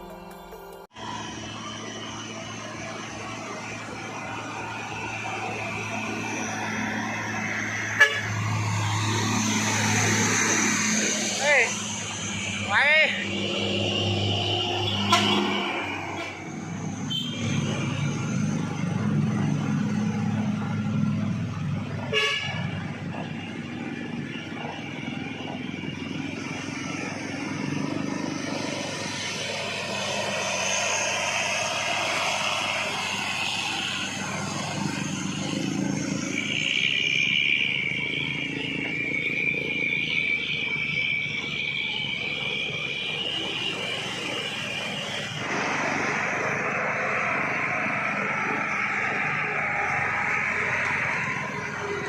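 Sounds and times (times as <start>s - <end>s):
heavy truck engines: 0.0s - 52.0s
truck horn: 6.7s - 10.0s, 13.1s - 18.2s, 21.9s - 23.2s.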